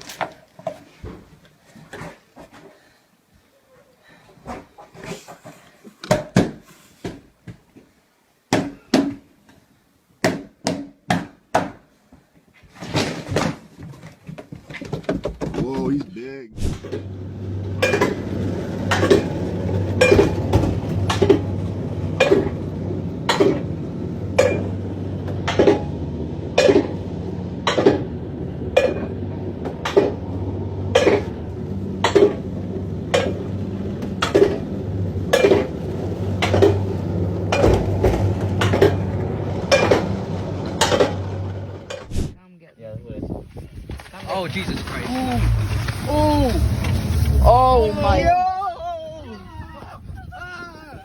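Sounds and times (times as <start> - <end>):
steady low hum: 16.4 - 42.4.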